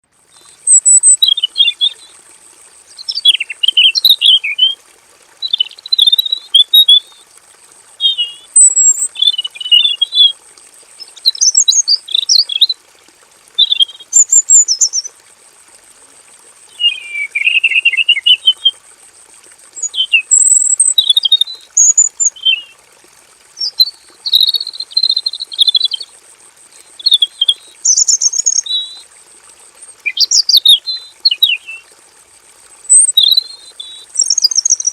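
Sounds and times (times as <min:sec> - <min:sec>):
bird singing warbled phrases: 0:00.4 - 0:02.1, 0:02.9 - 0:04.8, 0:05.4 - 0:07.2, 0:08.0 - 0:10.4, 0:11.0 - 0:12.8, 0:13.6 - 0:15.1, 0:16.7 - 0:18.8, 0:19.8 - 0:22.8, 0:23.6 - 0:26.1, 0:26.8 - 0:29.0, 0:30.0 - 0:31.9, 0:32.9 - 0:34.9.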